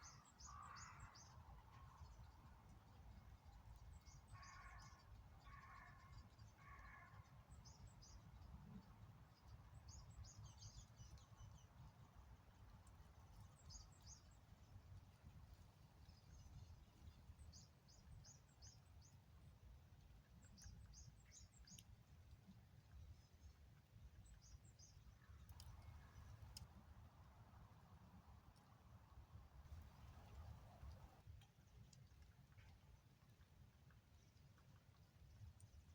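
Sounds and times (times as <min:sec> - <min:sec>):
small birds chirping: 0:00.0 - 0:26.7.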